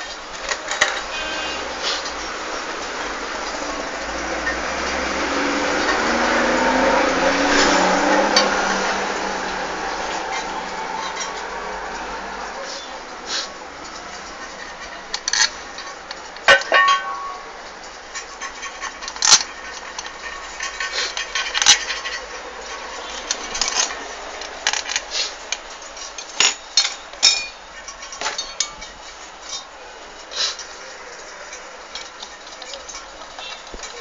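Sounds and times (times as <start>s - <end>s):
metal tools clinking and knocking: 0.1s - 2.2s, 10.1s - 11.5s, 13.8s - 34.0s.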